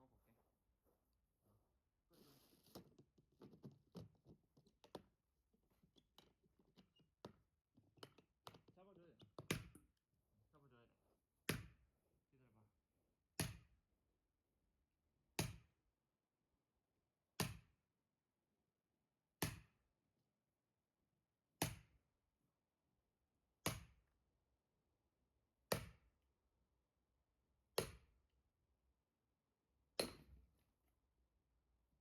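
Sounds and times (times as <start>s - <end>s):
axe chopping firewood: 27.8s - 28.0s, 30.0s - 30.4s.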